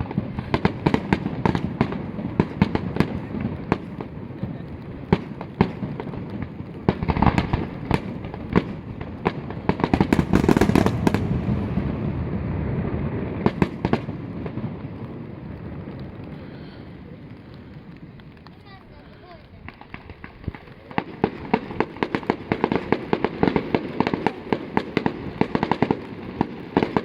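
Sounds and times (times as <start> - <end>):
fireworks bursting bangs: 0.0 - 27.0
continuous low rumble: 10.9 - 21.7.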